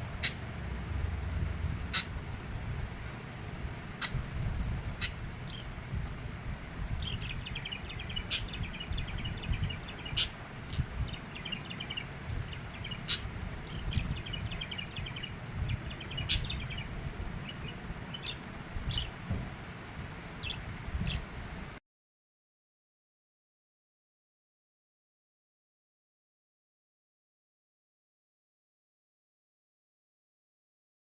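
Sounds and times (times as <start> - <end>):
low rumble: 0.0 - 21.7
budgerigar chattering warble: 0.2 - 0.4, 1.9 - 2.2, 4.0 - 4.3, 5.0 - 5.6, 7.9 - 9.4, 10.0 - 10.4, 12.8 - 16.8
budgerigar chirping: 0.2 - 0.4, 1.9 - 2.2, 4.0 - 4.3, 5.0 - 5.6, 7.0 - 10.4, 11.0 - 19.1.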